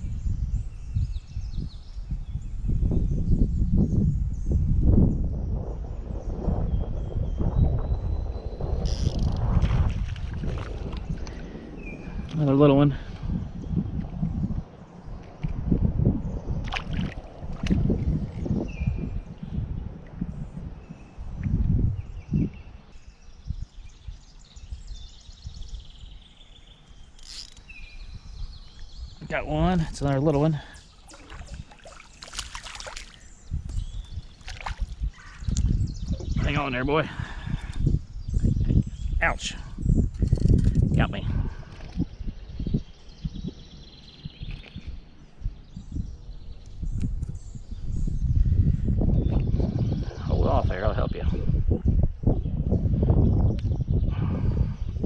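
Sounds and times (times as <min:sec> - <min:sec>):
songbirds chirping in trills: 0:00.0 - 0:55.0
low rumbling thumps: 0:02.8 - 0:22.6.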